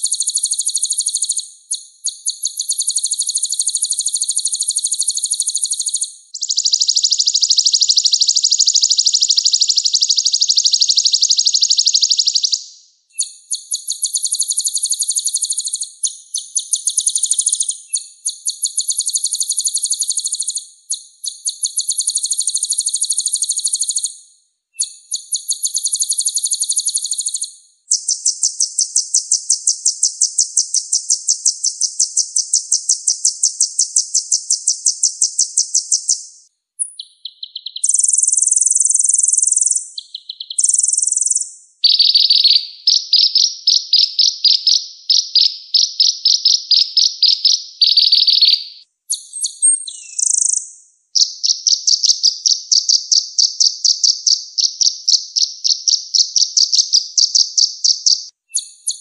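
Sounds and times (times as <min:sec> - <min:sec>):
songbird chattering trills: 0:00.0 - 0:24.1, 0:36.8 - 0:59.0.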